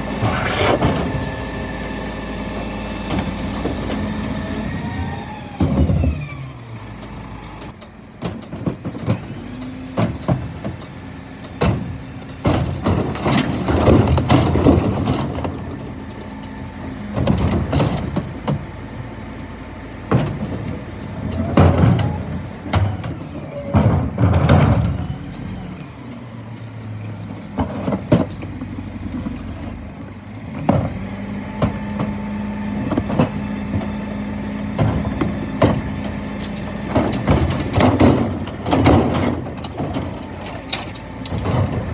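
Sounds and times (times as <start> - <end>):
truck engine running: 0.0 - 41.9
loud clattering and knocks: 8.2 - 16.2, 34.6 - 41.9.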